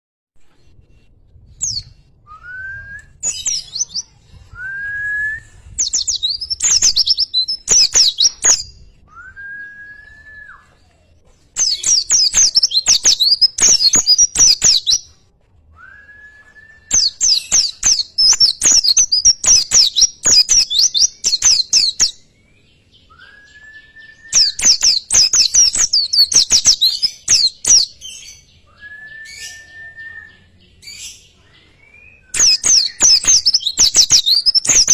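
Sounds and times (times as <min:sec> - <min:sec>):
bird whistle rising: 0:28.8 - 0:30.5.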